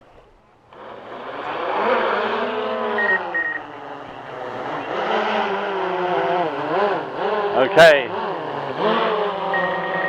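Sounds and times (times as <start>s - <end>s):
motor hum: 0.1s - 10.0s
short electronic beeps: 3.0s - 3.6s, 9.5s - 10.0s.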